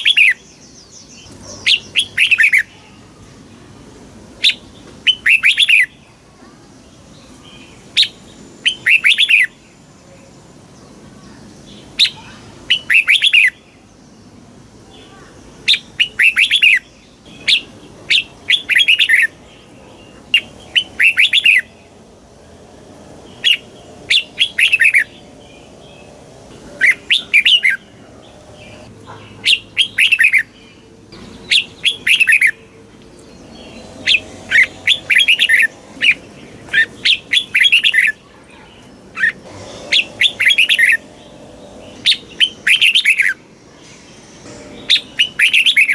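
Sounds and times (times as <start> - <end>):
bulbul singing: 14.9 - 45.9.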